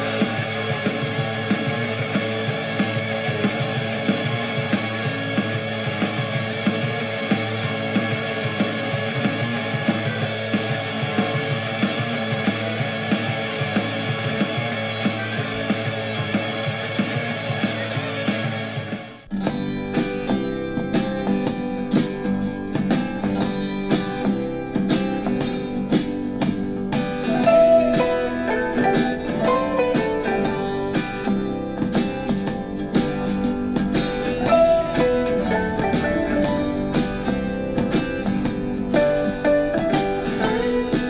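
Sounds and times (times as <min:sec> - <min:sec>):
country-folk acoustic guitar music: 0:19.3 - 0:41.0.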